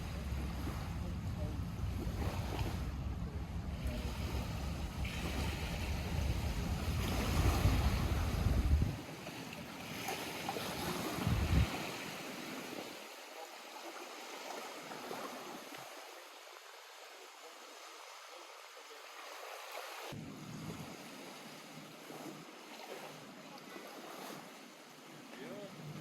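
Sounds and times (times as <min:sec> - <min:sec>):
wind rumbling on microphone: 0:00.0 - 0:09.1, 0:10.8 - 0:12.2, 0:20.2 - 0:21.3
water lapping at shore: 0:00.0 - 0:26.0.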